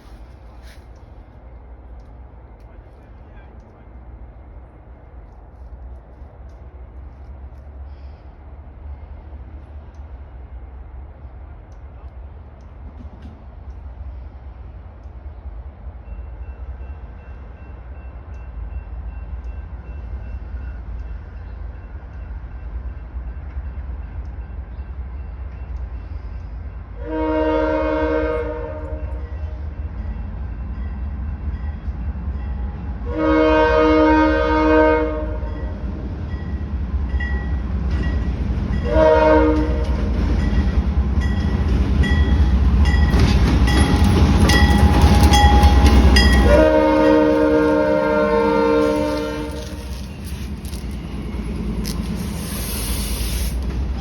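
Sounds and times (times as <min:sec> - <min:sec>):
diesel train engine rumble: 0:00.0 - 0:54.0
rail noise: 0:00.0 - 0:54.0
train air horn blasts: 0:27.0 - 0:29.5, 0:33.0 - 0:35.7, 0:38.8 - 0:40.0, 0:44.0 - 0:51.0.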